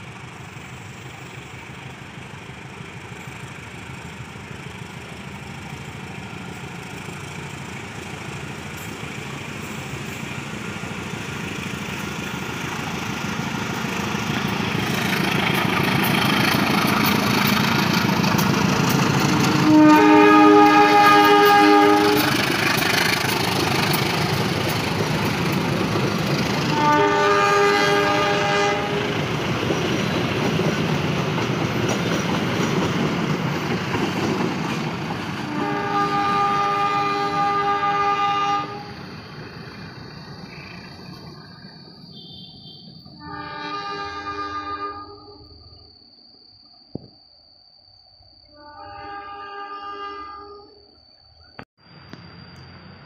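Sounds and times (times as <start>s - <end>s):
rumble of train rolling past: 0.0s - 53.0s
train horn blasts: 19.4s - 22.5s, 26.7s - 29.2s, 35.4s - 39.0s, 42.1s - 45.6s, 48.5s - 50.8s.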